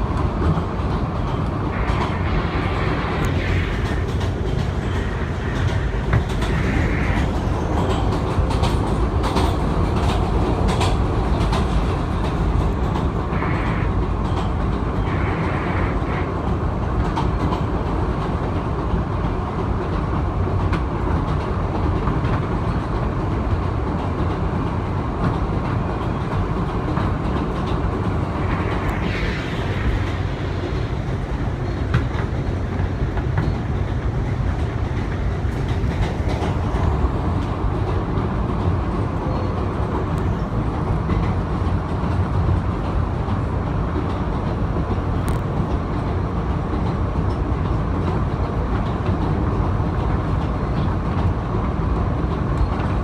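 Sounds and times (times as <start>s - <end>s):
subway car rumble: 0.0s - 53.0s
wheels clicking over rail joints: 7.7s - 13.2s.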